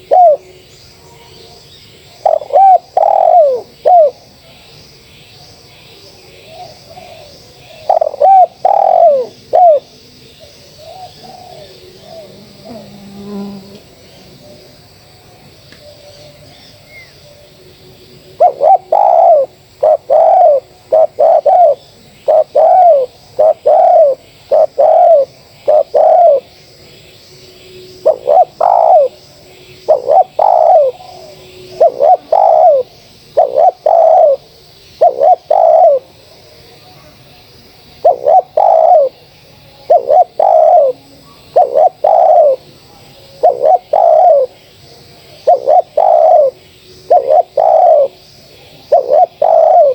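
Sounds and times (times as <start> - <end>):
dove cooing: 0.0 - 0.5, 2.0 - 4.2, 6.4 - 14.7, 18.2 - 26.5, 27.6 - 36.2, 38.0 - 39.2, 39.8 - 49.9.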